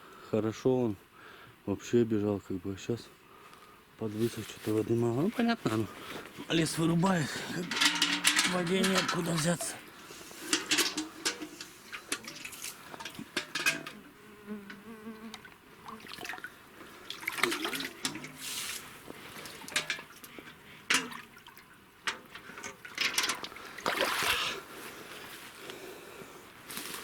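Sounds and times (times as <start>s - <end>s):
rustling through undergrowth: 4.1s - 13.4s, 18.3s - 19.7s, 24.4s - 27.0s
fly buzzing: 13.9s - 16.2s.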